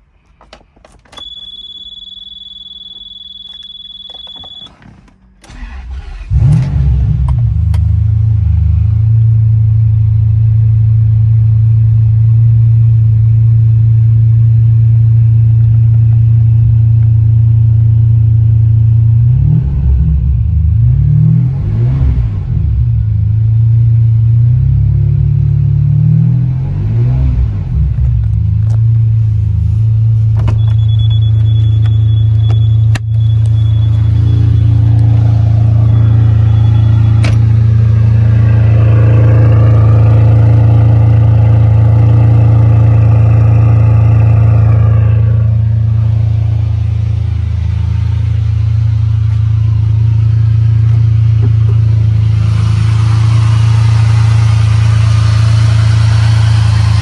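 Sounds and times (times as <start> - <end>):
car engine idling and revving: 0.0 - 57.0
dashboard warning tone: 1.1 - 5.2, 30.4 - 46.1.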